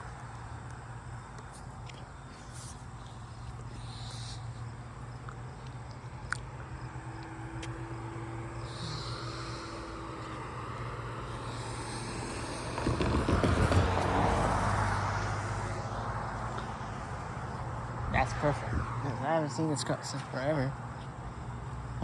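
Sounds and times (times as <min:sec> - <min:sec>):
road traffic hum: 0:00.0 - 0:22.0
car passing by: 0:05.7 - 0:22.0.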